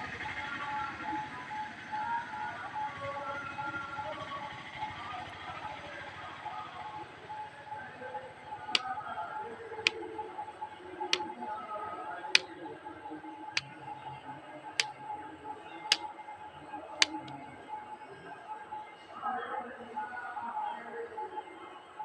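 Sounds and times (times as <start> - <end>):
sharp clicks: 17.0 - 17.3.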